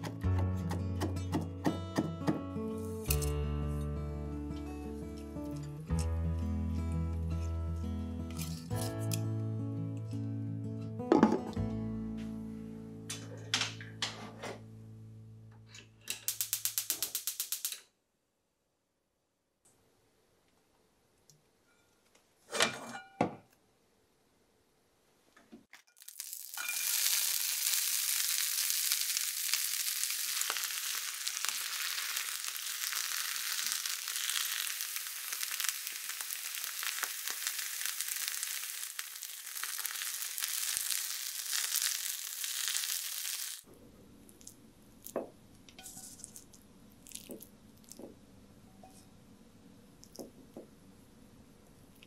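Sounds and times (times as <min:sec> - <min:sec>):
spinach sizzling in frying pan: 0:25.9 - 0:43.7.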